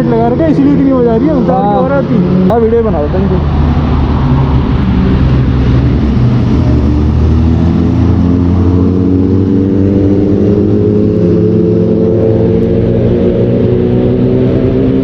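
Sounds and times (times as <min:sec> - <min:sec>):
motorcycle engine accelerating: 0:00.0 - 0:15.0
wind rush on microphone: 0:03.2 - 0:15.0.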